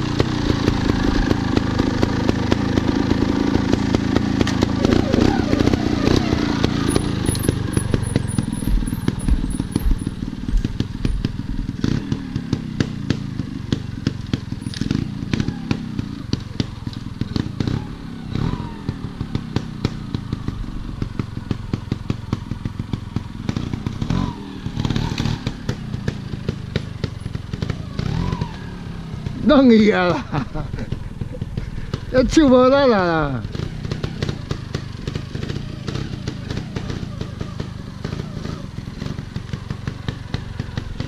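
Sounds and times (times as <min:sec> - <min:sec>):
motorcycle engine running: 0:00.0 - 0:41.0
knocks and rattles: 0:06.9 - 0:11.7.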